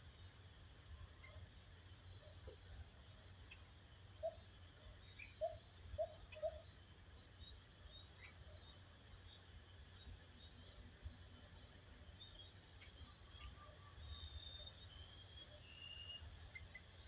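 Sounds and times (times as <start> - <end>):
faint high bird chirps: 12.2 - 17.0.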